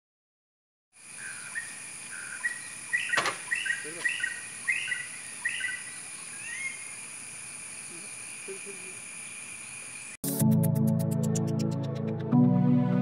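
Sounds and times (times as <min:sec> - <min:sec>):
bird chirping: 0:01.0 - 0:10.2.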